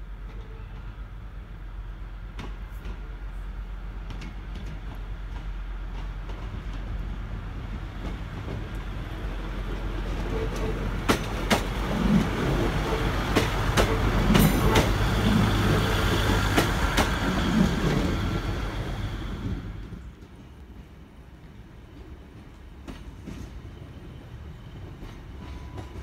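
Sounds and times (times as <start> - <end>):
train diesel engine humming: 0.0 - 26.0
train wheels clicking over rail joints: 4.0 - 20.4.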